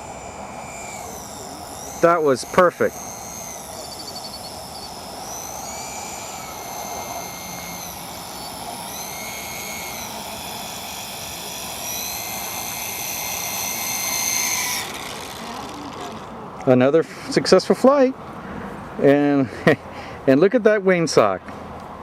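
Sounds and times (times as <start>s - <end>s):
model airplane motor whining: 0.0s - 17.4s.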